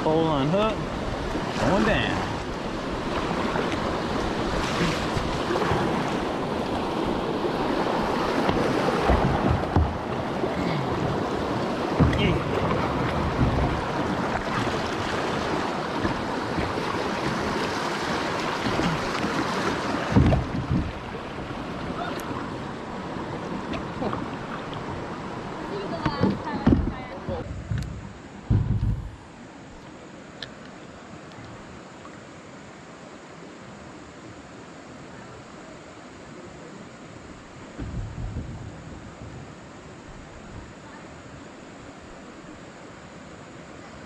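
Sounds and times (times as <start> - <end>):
river water rushing: 0.0 - 27.4
low knocks: 12.0 - 13.9, 20.1 - 21.0, 26.0 - 29.2.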